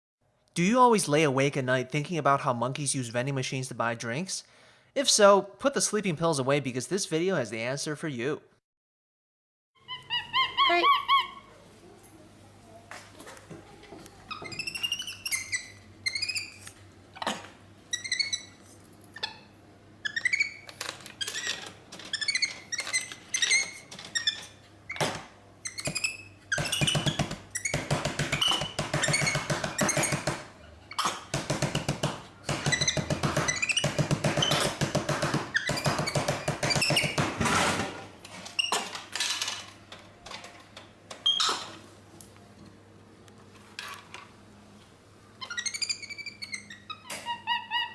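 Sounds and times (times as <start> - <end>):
monkey squeaky chirps: 9.8 - 11.5, 14.3 - 16.6, 17.9 - 18.6, 19.2 - 24.4, 45.4 - 47.9.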